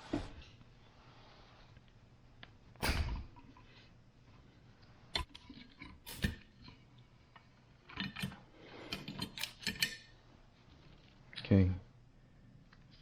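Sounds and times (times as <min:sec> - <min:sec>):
clicks of parts and tools: 0:07.4 - 0:10.2.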